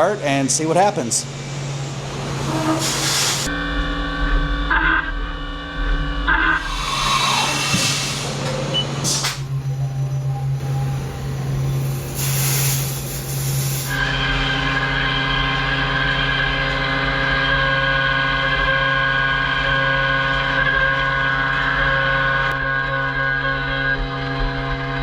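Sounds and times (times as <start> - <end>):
milling machine low hum: 1.2 - 12.2
multi-tone machine whine: 1.2 - 12.2, 13.0 - 25.0
hiss: 2.8 - 3.5, 6.6 - 8.5, 11.8 - 14.0.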